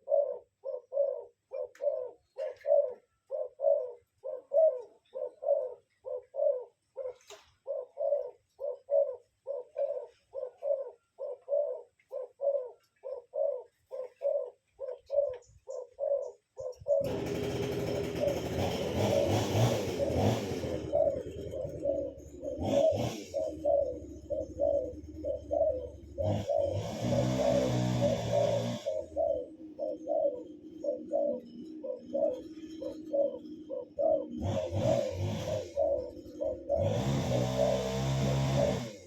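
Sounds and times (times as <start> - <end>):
bird calling low note: 0.0 - 39.0.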